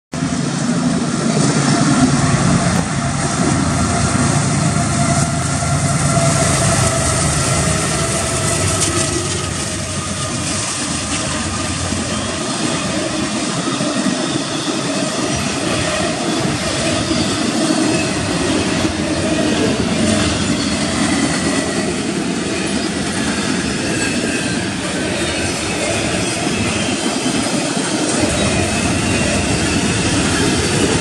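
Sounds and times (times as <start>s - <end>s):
diesel locomotive rumble: 0.2s - 31.0s
freight cars rolling on rails: 0.2s - 31.0s.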